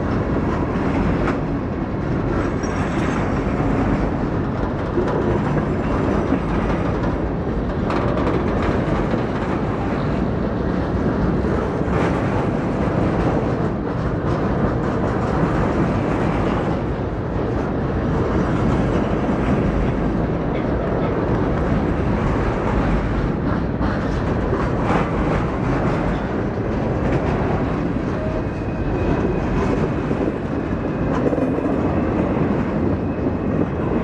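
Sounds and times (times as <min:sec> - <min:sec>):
freight train rolling on rails: 0:00.0 - 0:34.0.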